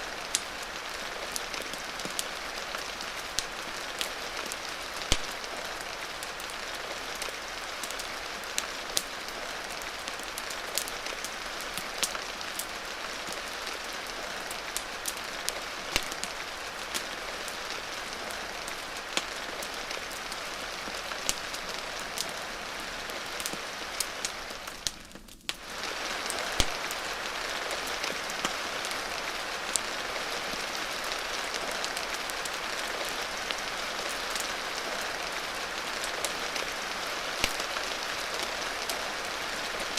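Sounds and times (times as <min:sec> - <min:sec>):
steady rain with ticks and pops: 0:00.0 - 0:39.9.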